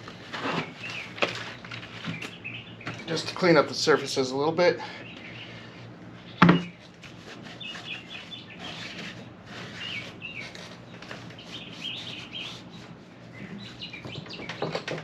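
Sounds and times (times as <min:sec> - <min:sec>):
small birds chirping: 0:00.6 - 0:06.8, 0:07.5 - 0:14.9
rag rubbing on metal: 0:07.0 - 0:13.9.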